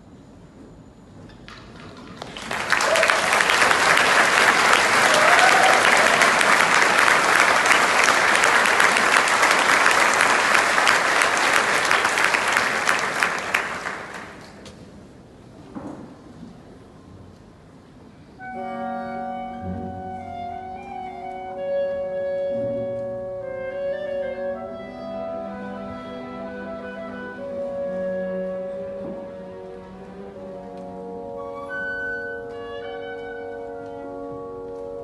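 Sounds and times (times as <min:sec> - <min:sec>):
audience applauding: 0:01.5 - 0:14.6.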